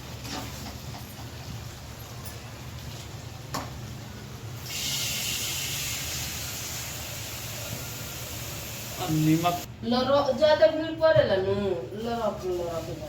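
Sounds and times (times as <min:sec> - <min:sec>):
loud steady sizzle: 0:00.0 - 0:09.7
curry frying in a pan: 0:04.6 - 0:09.7.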